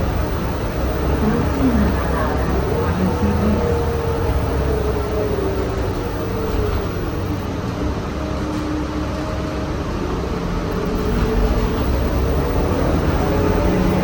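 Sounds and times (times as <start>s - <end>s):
faint whine: 0.0s - 7.8s, 10.7s - 14.0s
bus engine and road noise: 7.5s - 10.8s.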